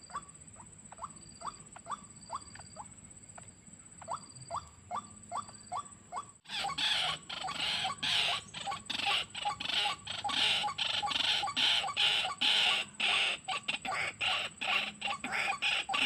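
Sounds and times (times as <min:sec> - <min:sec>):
waterhen harsh croaking calls: 0:04.0 - 0:16.0.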